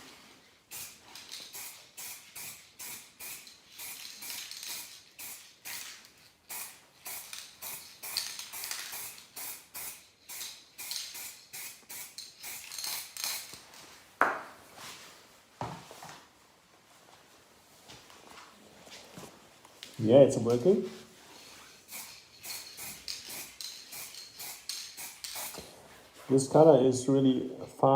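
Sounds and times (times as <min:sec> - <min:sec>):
aerosol can hissing in spurts: 0:00.7 - 0:05.8, 0:06.5 - 0:13.6, 0:21.8 - 0:25.7.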